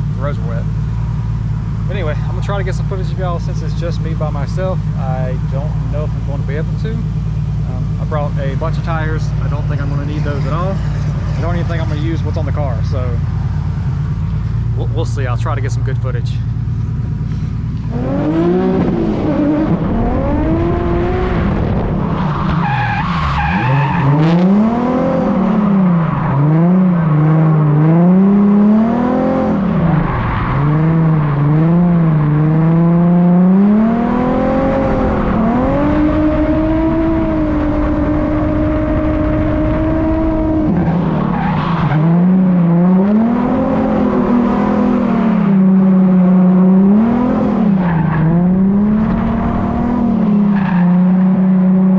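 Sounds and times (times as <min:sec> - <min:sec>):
car engine revving: 0:00.0 - 0:51.9.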